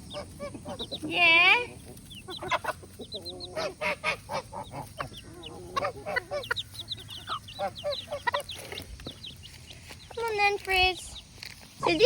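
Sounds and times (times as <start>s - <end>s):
adult fowl calling: 0.0s - 8.9s
chicks peeping: 0.0s - 12.0s.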